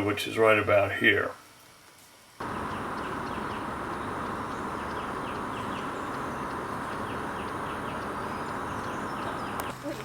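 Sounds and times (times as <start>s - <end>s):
insect drone: 2.4s - 9.7s
short chirping calls: 2.4s - 9.8s.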